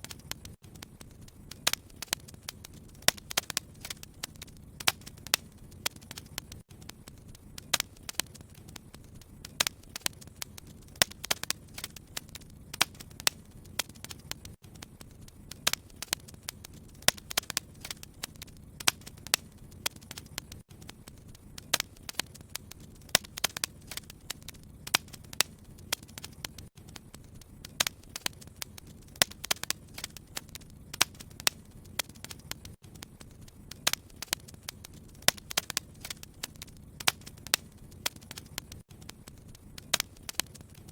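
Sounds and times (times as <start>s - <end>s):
fire pops and snaps: 0.0s - 40.9s
low rumble of burning: 0.0s - 40.9s.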